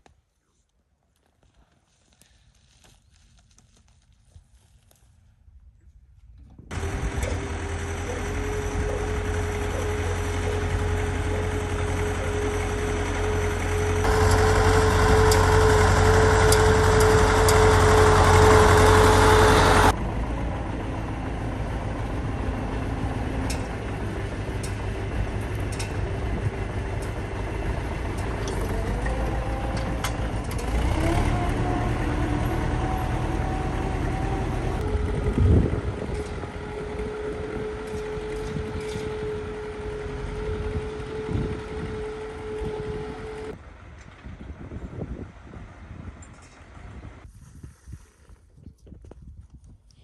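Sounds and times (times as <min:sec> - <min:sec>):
rising tone: 0:06.7 - 0:23.2
tractor engine running: 0:06.7 - 0:47.2.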